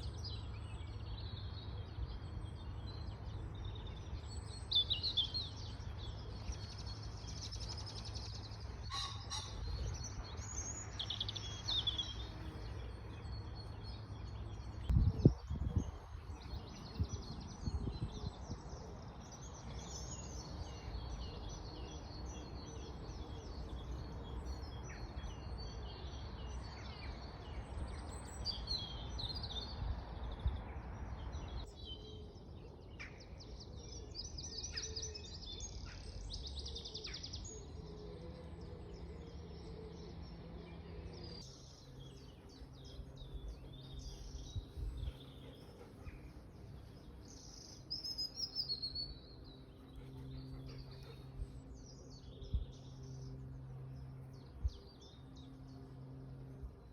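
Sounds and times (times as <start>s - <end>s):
songbirds chirping and singing: 0.0s - 56.9s
steady low rumble: 38.2s - 48.5s.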